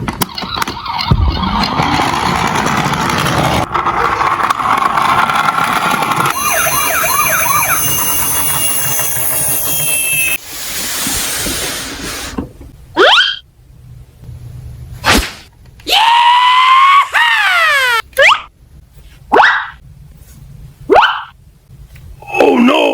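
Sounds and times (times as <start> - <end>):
emergency vehicle siren: 6.3 - 9.7.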